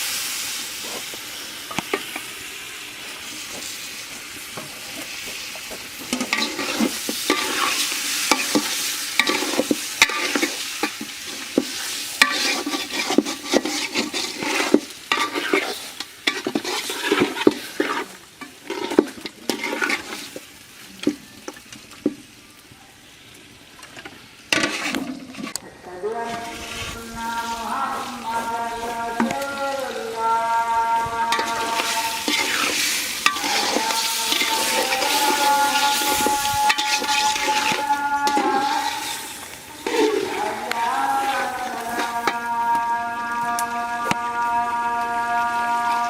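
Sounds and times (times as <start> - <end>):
food sizzling in a pan: 0.0 - 46.0
spatula scraping a pan: 4.6 - 20.5, 24.0 - 25.6, 31.0 - 42.6.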